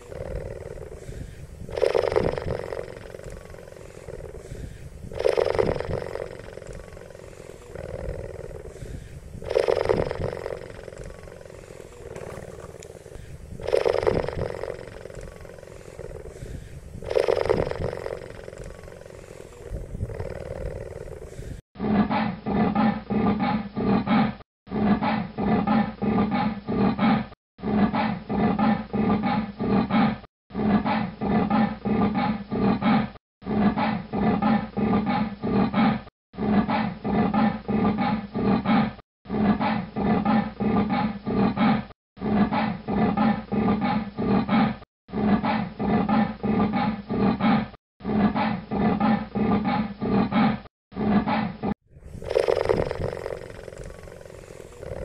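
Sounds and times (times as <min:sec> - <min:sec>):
cheetah calling in low pulses: 0:00.0 - 0:21.6.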